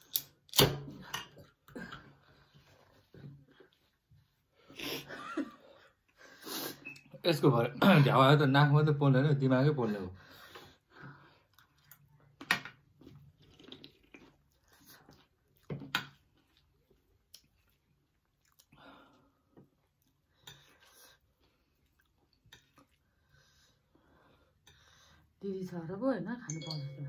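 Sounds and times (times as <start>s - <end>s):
crunchy food chewing: 13.0s - 18.8s.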